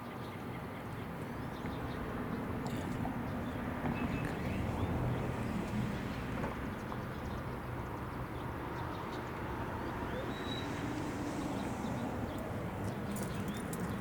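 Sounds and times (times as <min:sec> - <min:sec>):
faint high chirp: 0:10.1 - 0:10.8.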